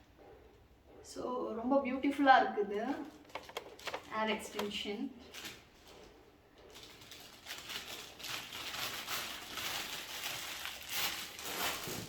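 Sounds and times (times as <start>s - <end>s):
packaging rustling and crinkling: 3.0s - 12.0s.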